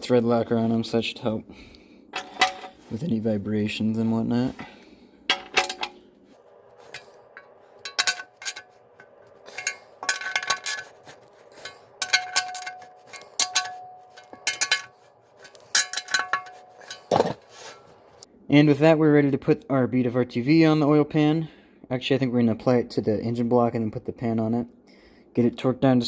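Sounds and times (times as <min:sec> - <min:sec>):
metal parts clinking: 0:02.1 - 0:02.9, 0:05.3 - 0:06.0, 0:06.7 - 0:18.0
metallic ringing: 0:02.1 - 0:02.9, 0:05.2 - 0:18.2.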